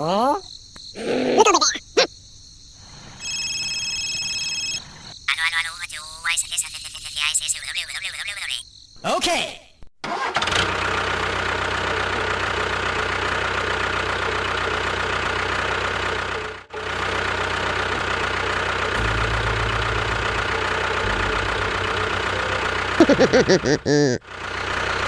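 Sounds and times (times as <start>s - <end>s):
engine running: 10.5s - 25.0s.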